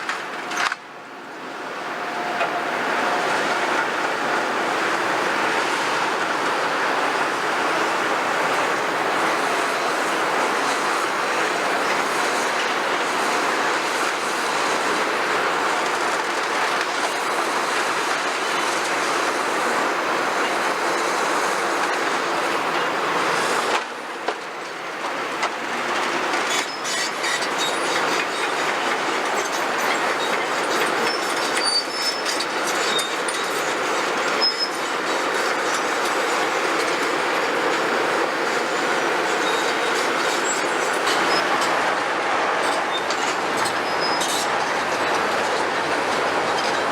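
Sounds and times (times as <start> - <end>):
excavators clattering with rubble: 0.0 - 1.0, 2.0 - 46.9
high metal squeals: 42.9 - 44.8.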